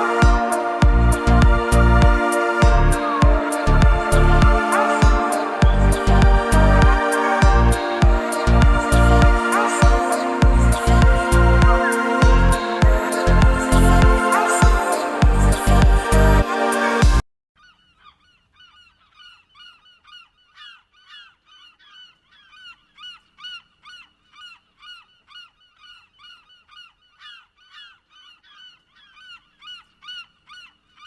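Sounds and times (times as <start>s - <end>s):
geese honking: 0.0s - 17.0s.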